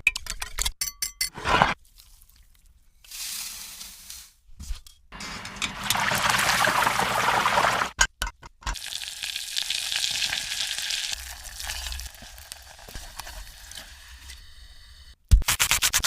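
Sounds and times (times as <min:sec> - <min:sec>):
food sizzling in hot oil: 0:08.8 - 0:13.8.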